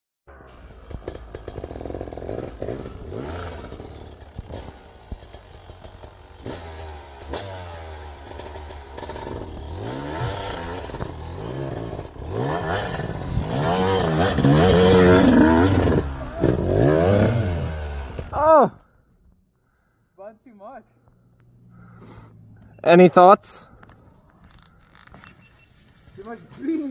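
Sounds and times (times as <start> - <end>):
snow bike engine revving: 0.3 - 18.7.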